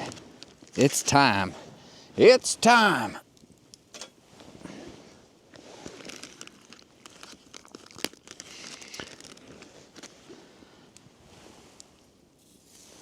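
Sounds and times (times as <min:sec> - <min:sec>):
plastic packaging crinkling: 0:05.8 - 0:10.2.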